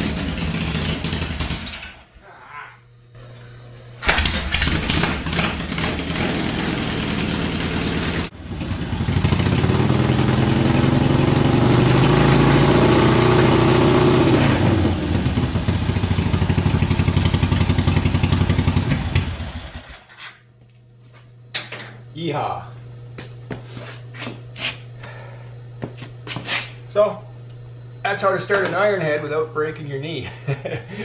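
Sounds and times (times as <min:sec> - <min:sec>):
motorcycle engine revving and idling: 0:00.0 - 0:01.9, 0:04.0 - 0:19.9.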